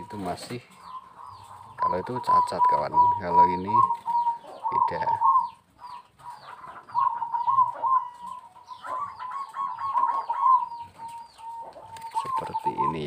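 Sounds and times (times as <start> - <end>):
birds chirping: 0.0 - 13.0
continuous cooing: 0.0 - 13.0.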